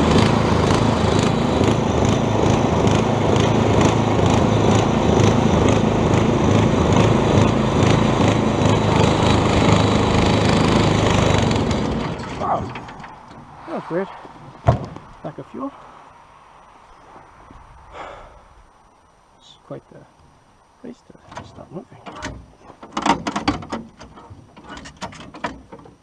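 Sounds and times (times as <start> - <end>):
small engine running under load: 0.0 - 13.5.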